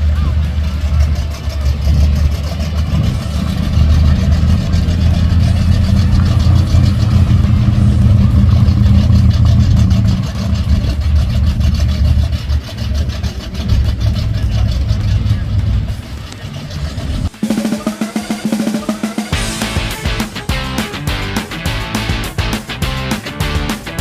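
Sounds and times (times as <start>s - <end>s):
car engine with exhaust rumble: 0.0s - 17.3s.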